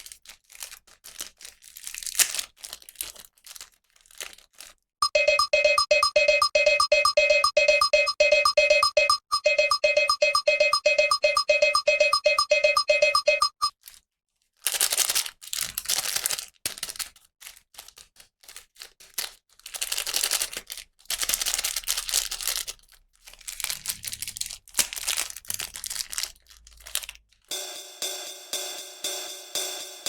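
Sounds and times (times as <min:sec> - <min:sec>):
toy packaging crinkling: 0:00.0 - 0:04.9, 0:13.7 - 0:27.5
music with even beat: 0:05.0 - 0:13.7, 0:27.5 - 0:30.0.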